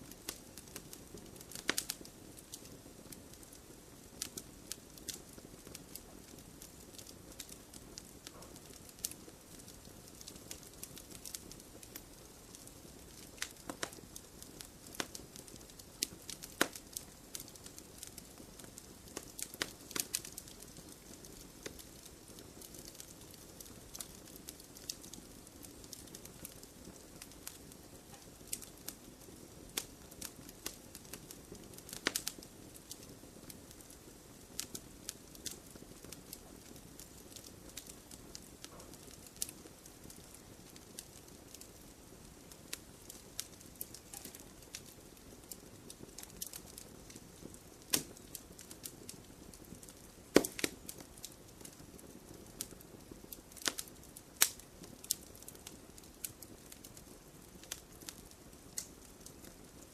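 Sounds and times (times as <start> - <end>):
sharp fire pops: 0.0 - 59.4
campfire crackling: 0.0 - 59.9.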